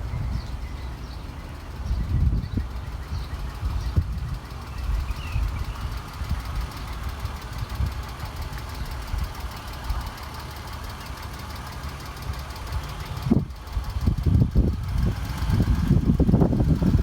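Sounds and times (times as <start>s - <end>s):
wind on microphone: 0.0s - 0.7s, 1.8s - 6.7s, 13.2s - 17.0s
car engine idling: 0.0s - 17.0s.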